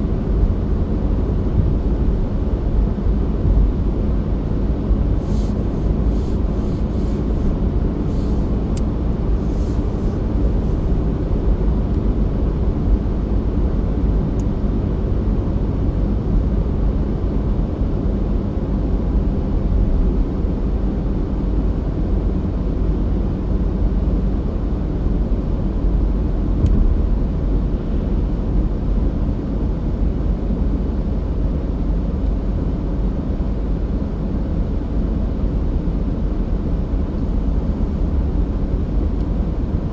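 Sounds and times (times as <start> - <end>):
car driving rumble inside cabin: 0.0 - 39.9.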